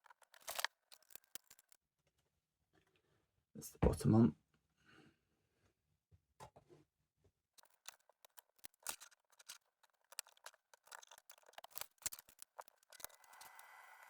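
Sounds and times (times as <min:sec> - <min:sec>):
plastic toy bricks clicking: 0:00.0 - 0:01.8, 0:07.6 - 0:13.7.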